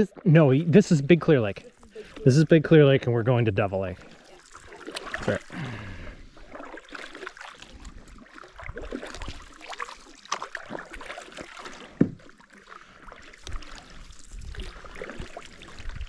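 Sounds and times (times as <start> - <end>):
paddle splashing in water: 0.0 - 16.0
knocks on canoe: 12.0 - 12.3.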